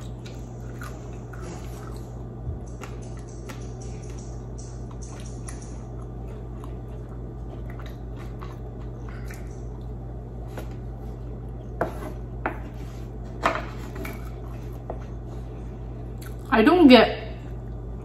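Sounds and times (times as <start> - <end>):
chewing mouth sounds: 0.0 - 10.0, 16.2 - 16.5
low hum: 0.0 - 18.0.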